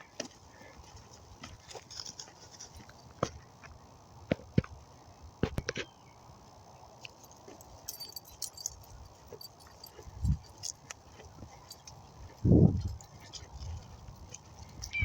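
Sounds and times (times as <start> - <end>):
dog tags jingling: 7.2 - 15.0.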